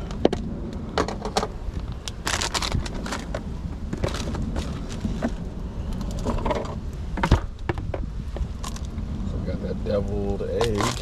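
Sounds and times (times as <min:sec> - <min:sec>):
food crackling in a pan: 0:10.5 - 0:11.0.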